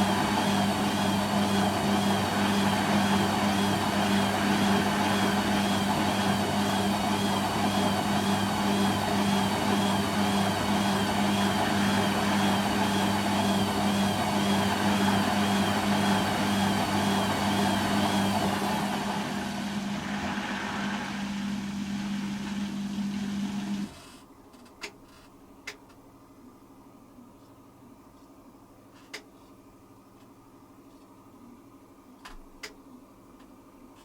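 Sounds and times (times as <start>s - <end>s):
washing machine spinning: 0.0s - 24.0s.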